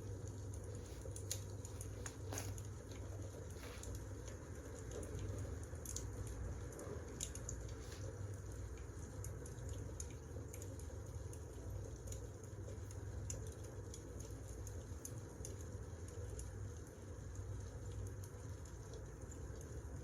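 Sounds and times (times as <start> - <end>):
wood fire crackling: 0.1 - 12.2.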